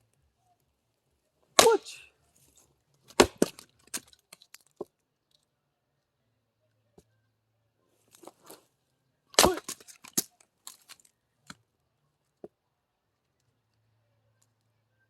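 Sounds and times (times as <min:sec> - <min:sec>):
split wood cracking and knocking: 0:01.6 - 0:01.8, 0:03.0 - 0:05.0, 0:09.4 - 0:11.6
axe splitting log: 0:01.6 - 0:02.0, 0:03.1 - 0:04.1, 0:09.4 - 0:10.9.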